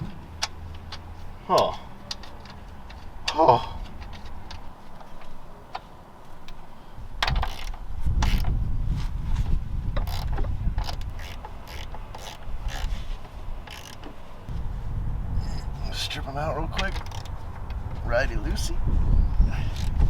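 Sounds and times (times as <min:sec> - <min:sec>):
low rumble: 0:14.5 - 0:20.0.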